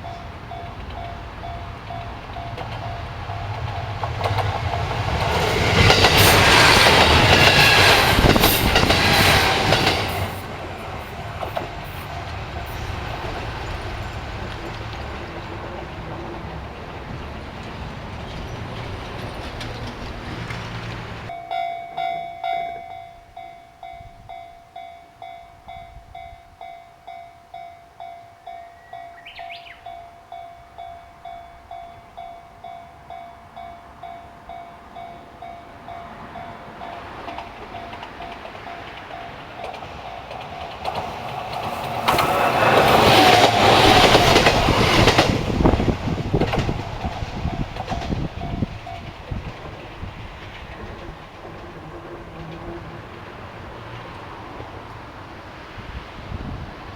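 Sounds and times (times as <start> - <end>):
wheels clacking over rail joints: 0.0 - 23.0, 33.6 - 55.4
passing train rumble: 0.0 - 56.9.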